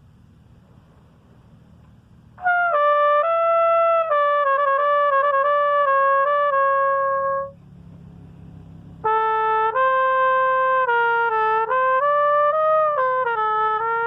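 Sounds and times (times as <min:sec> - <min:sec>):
solo trumpet: 0:02.4 - 0:07.6, 0:09.0 - 0:14.0.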